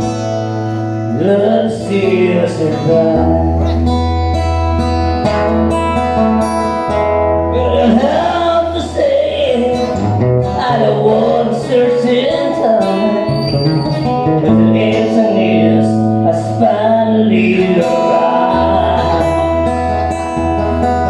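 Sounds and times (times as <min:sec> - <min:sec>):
person singing: 0:00.0 - 0:04.0, 0:07.4 - 0:13.5, 0:14.2 - 0:21.0
bass line: 0:00.0 - 0:21.0
strummed acoustic guitar: 0:00.0 - 0:21.0.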